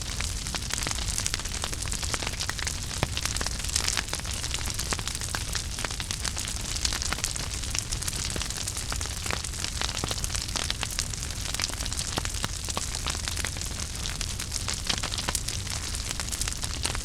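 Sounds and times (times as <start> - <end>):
wood fire crackling in fireplace: 0.0 - 17.0.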